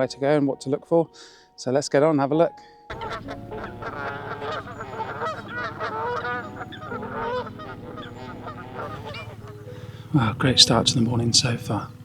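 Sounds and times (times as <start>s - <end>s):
geese honking: 2.9s - 12.0s.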